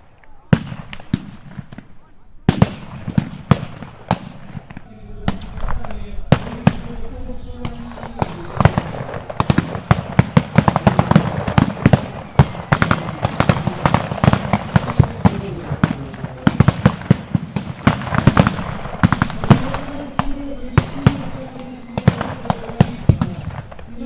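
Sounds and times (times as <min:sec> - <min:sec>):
blank gunfire shots: 0:00.5 - 0:24.0.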